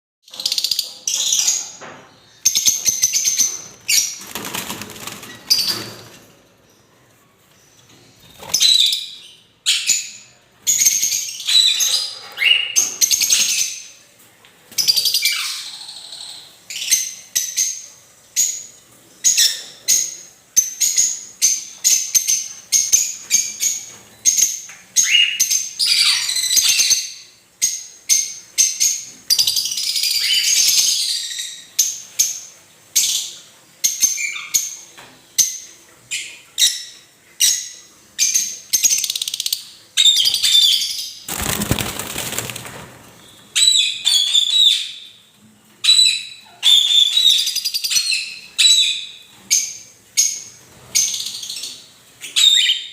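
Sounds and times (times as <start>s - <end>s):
cockatiels screeching: 25.0s - 26.8s.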